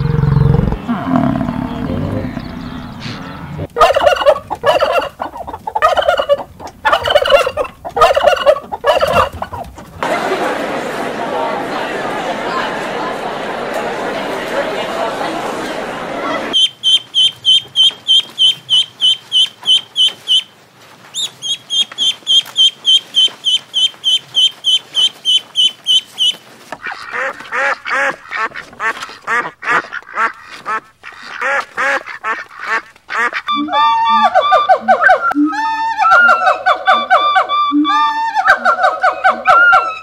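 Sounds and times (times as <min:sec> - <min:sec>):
ducks quacking: 0:01.6 - 0:20.5, 0:21.2 - 0:40.0
ducklings peeping: 0:01.7 - 0:09.9, 0:16.5 - 0:20.5, 0:21.1 - 0:40.0.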